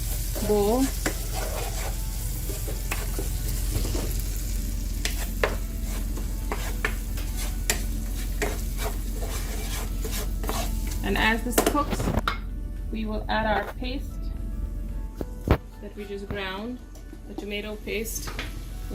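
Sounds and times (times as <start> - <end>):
masala sizzling in hot oil: 0.0 - 11.4
spoon scraping against pan: 0.4 - 3.2, 5.0 - 11.0.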